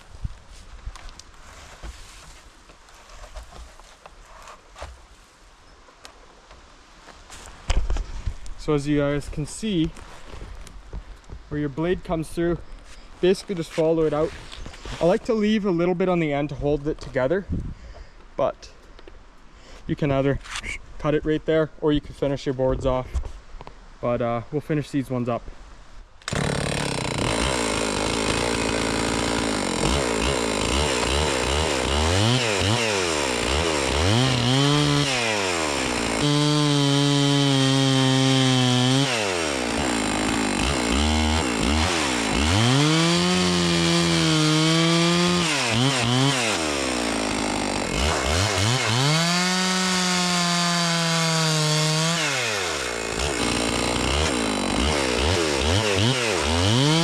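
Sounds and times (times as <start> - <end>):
chainsaw revving cutting log: 26.3 - 57.0.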